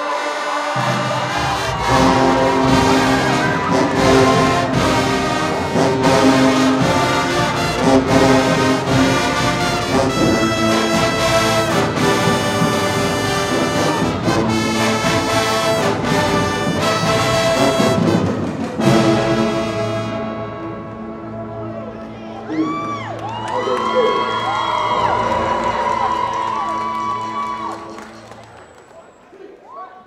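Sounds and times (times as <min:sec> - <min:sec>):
brass holding chords: 0:00.0 - 0:22.5
marching drum hits: 0:00.8 - 0:20.2.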